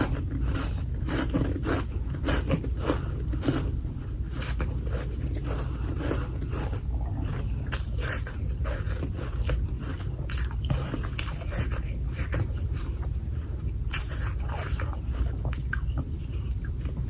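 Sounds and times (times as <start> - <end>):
person crunching frost: 0.0 - 13.0
steady low hum: 0.0 - 17.0.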